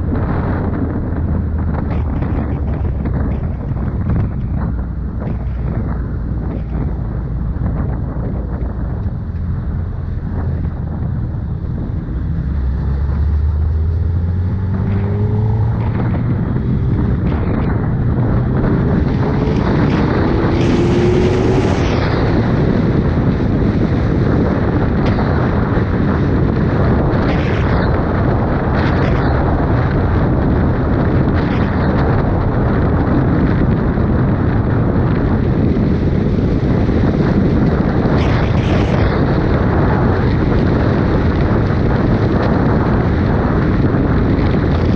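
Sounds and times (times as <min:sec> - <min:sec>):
motorcycle engine pulling hard: 0:00.0 - 0:34.2
wind noise on microphone: 0:00.0 - 0:44.9.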